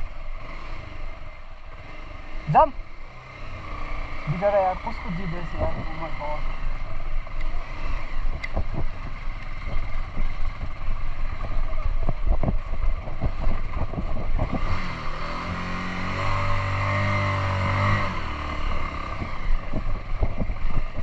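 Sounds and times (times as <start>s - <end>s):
engine revving hard: 1.8s - 6.5s, 14.4s - 19.6s.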